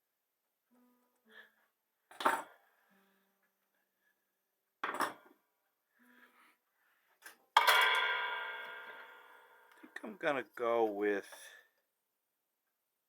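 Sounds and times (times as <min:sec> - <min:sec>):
knocks and clinks of hard objects: 0:04.8 - 0:05.4, 0:07.6 - 0:10.0.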